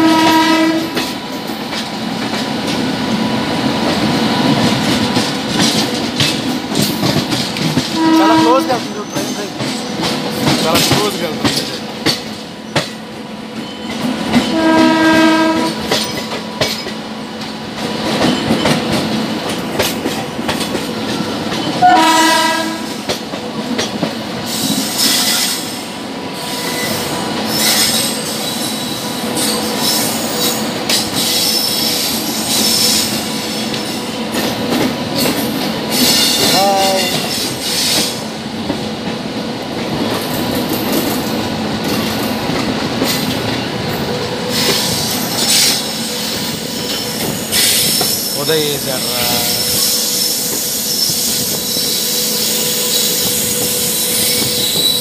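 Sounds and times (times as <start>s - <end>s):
locomotive horn: 0.0s - 1.0s, 8.0s - 8.9s, 14.5s - 15.9s, 21.8s - 23.0s
train coaches rumbling past: 0.0s - 55.0s
clatter over rail joints: 4.5s - 13.0s
wheel squeal: 44.5s - 48.4s, 49.4s - 55.0s.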